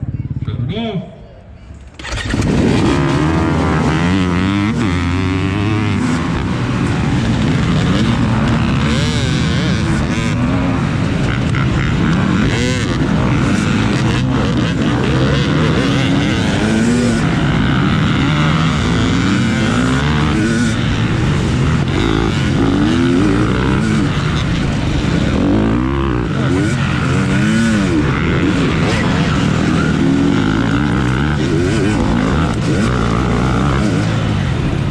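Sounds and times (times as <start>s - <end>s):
off-road motorcycle engines revving: 0.0s - 34.9s.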